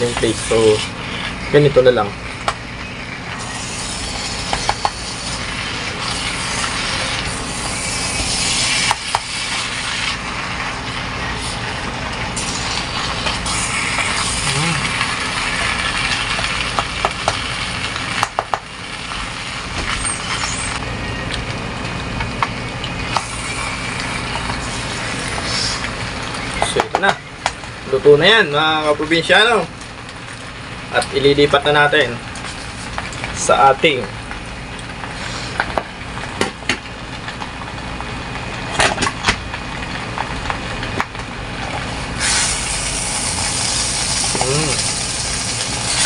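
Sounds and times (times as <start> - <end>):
food sizzling in a pan: 0.0 - 21.0, 21.8 - 46.0
spatula scraping a pan: 3.3 - 10.2.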